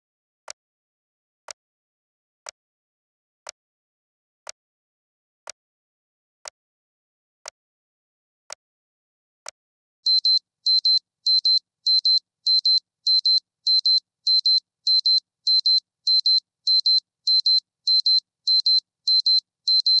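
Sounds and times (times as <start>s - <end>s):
electronic alarm double beeps: 10.1s - 20.0s.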